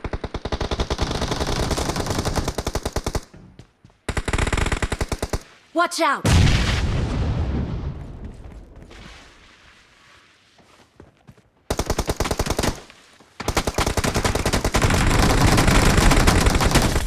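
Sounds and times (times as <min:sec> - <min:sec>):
video game automatic gunfire: 0:00.0 - 0:03.3, 0:04.1 - 0:05.5, 0:11.7 - 0:17.0.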